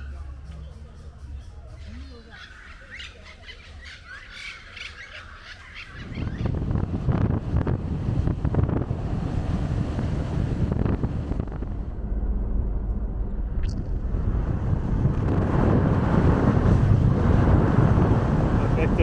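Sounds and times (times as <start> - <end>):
low rumbling noise: 6.0 - 19.0.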